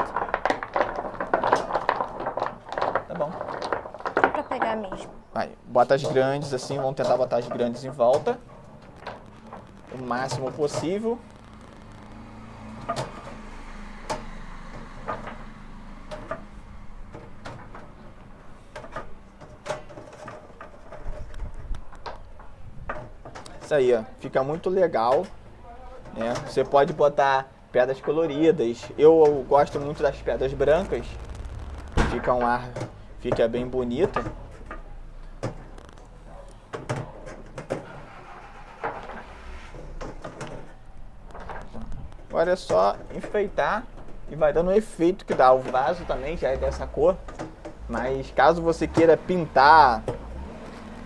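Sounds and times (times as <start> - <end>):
stones clicking together: 0.0 - 4.5
pebbles clicking together: 0.0 - 5.0, 8.2 - 12.5, 30.7 - 33.0.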